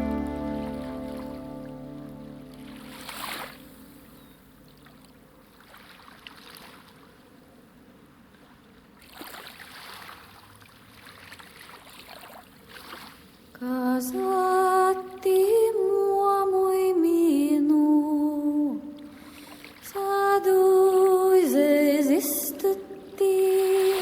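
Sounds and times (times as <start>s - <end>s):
hummed or sung melody: 0.0s - 3.1s
water lapping and splashing: 0.3s - 15.4s, 18.9s - 24.0s.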